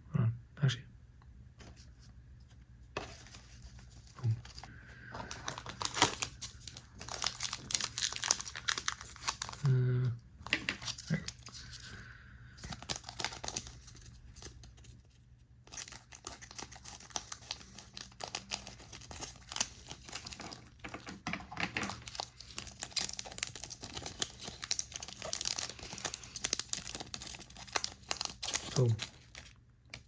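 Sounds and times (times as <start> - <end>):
foil wrappers crinkling and tearing: 3.0 - 9.8, 10.4 - 15.0, 15.6 - 30.0.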